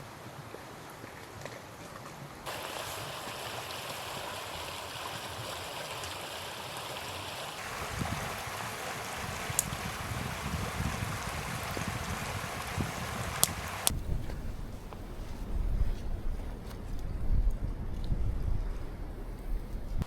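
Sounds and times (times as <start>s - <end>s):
river water rushing: 2.5s - 13.9s.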